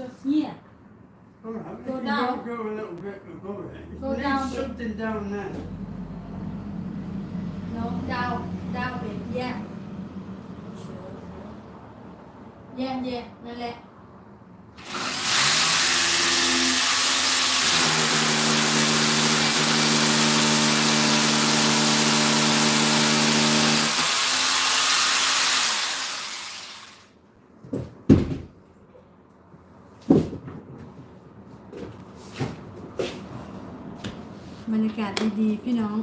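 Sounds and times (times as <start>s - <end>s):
electric drill boring into wall: 14.8s - 27.1s.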